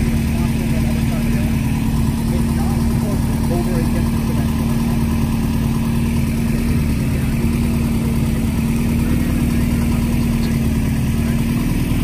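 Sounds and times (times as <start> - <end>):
car engine running steadily: 0.0 - 12.0.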